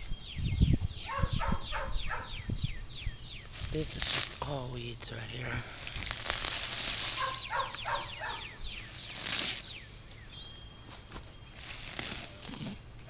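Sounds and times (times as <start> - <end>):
birds chirping: 0.0 - 13.0
rustling of plants being pulled: 3.0 - 13.0.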